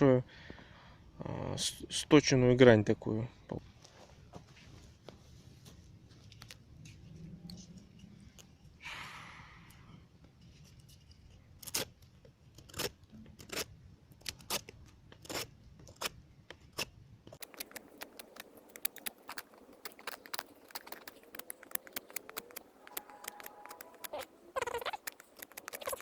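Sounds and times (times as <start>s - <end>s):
knife shaving wood: 10.8s - 26.0s.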